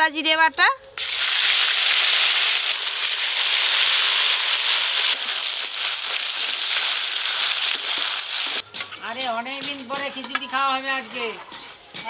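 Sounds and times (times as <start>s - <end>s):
spice paste sizzling in oil: 1.0s - 12.0s
spatula stirring: 7.7s - 12.0s.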